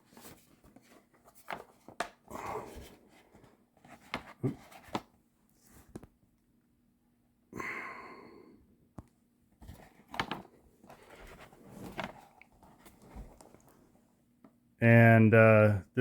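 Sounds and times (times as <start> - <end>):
packaging rustling: 9.6 - 13.9.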